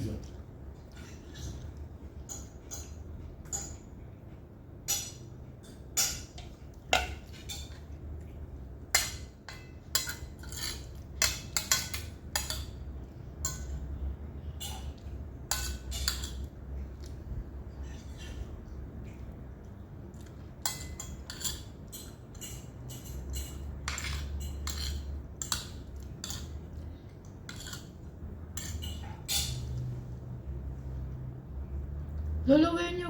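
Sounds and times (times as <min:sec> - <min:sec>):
cutlery clinking on plates: 0:00.9 - 0:04.0, 0:04.8 - 0:08.0, 0:08.9 - 0:12.8, 0:13.4 - 0:13.8, 0:14.5 - 0:17.1, 0:20.2 - 0:30.0.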